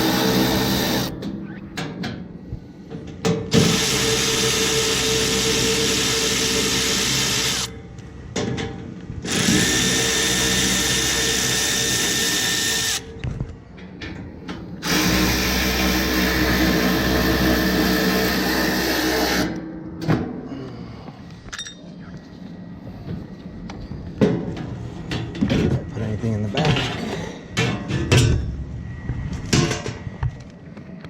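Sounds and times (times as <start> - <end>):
power drill running: 0.0 - 1.1, 3.5 - 7.7, 9.3 - 13.1, 14.8 - 19.6.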